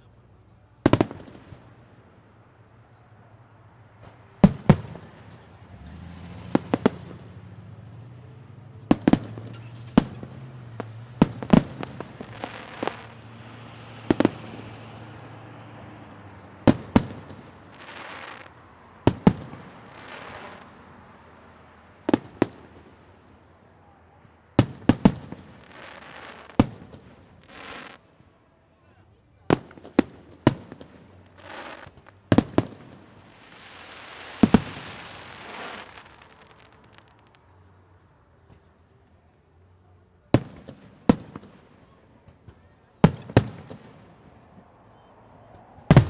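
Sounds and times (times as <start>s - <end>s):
fireworks bangs: 0.8s - 28.4s, 29.4s - 39.4s, 40.2s - 46.0s
crackling hisses: 3.7s - 28.3s, 30.7s - 39.4s.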